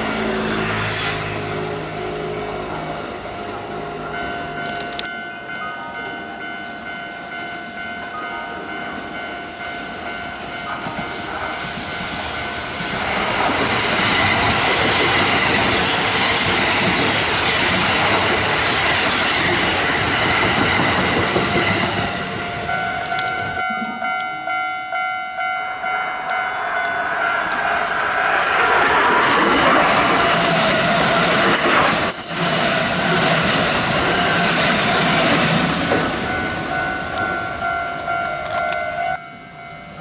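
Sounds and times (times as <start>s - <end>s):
electric train passing: 0.0s - 40.0s
wheels clacking over rail joints: 10.8s - 23.7s, 26.8s - 39.1s.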